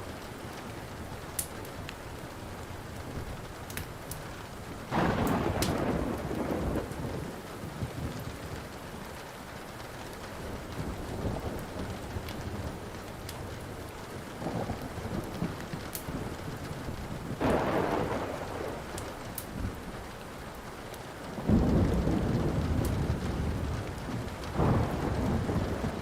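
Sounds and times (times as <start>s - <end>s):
steady rain: 0.0s - 26.0s
wood fire crackling and popping: 0.1s - 26.0s
thunderclap rumbling: 4.6s - 9.0s, 10.3s - 20.2s, 21.2s - 26.0s.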